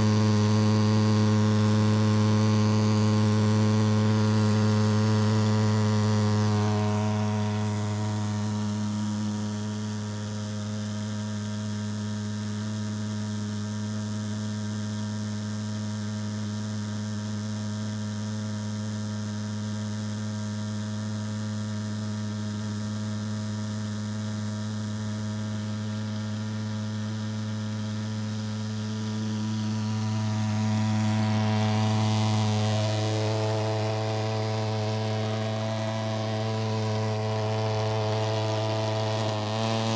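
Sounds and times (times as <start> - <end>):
pulsejet engine droning: 26.3 - 39.9.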